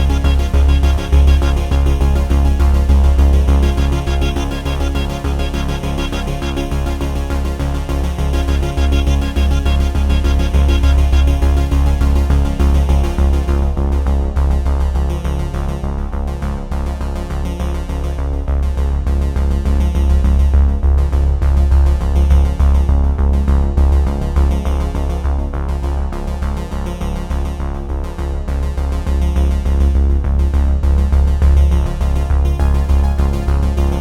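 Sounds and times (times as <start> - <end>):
electronic music with synthesizer: 0.0 - 14.6, 31.2 - 34.0
heavy steady bass beat: 0.0 - 17.3, 17.9 - 34.0.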